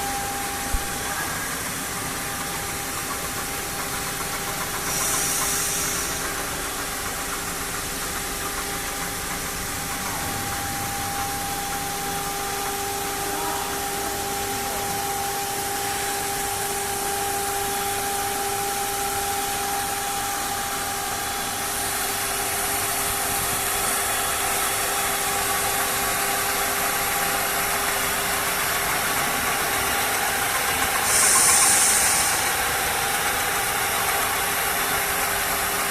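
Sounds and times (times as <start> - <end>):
short hissing burst: 31.0 - 32.5.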